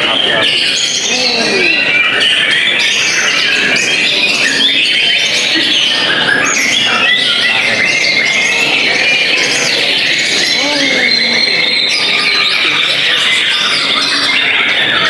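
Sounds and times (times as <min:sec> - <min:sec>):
songbirds singing: 0:00.0 - 0:15.0.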